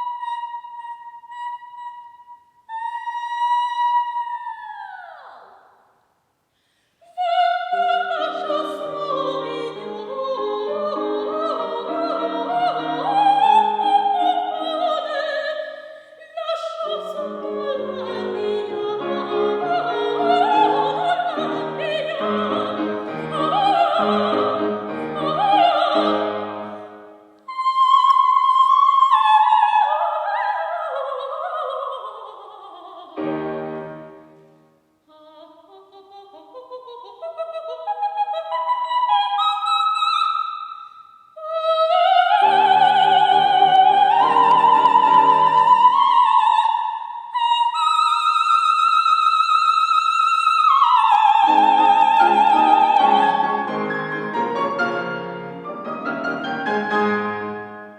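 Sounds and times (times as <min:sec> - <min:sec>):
soprano singing opera: 0:00.0 - 0:05.7, 0:07.0 - 0:34.2, 0:35.0 - 0:40.6, 0:41.4 - 0:55.2
piano accompaniment: 0:33.2 - 0:34.5, 0:51.5 - 0:57.9.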